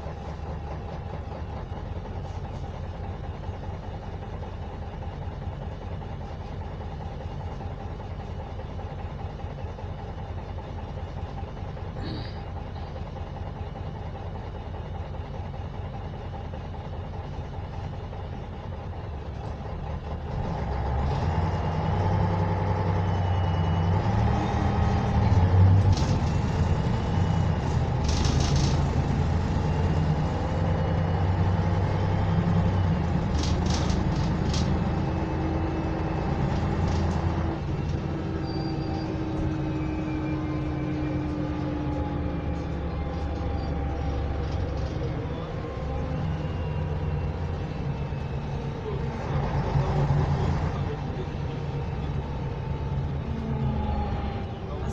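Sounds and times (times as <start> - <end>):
bus diesel engine accelerating: 0.0 - 54.9.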